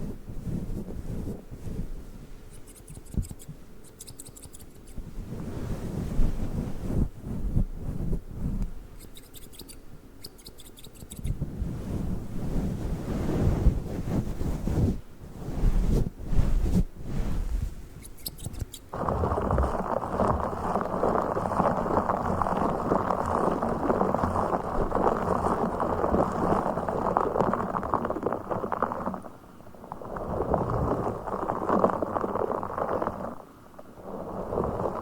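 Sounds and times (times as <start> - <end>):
scissors snipping and scraping: 2.6 - 5.0, 18.0 - 18.9
toy rustling at microphone: 9.0 - 18.9.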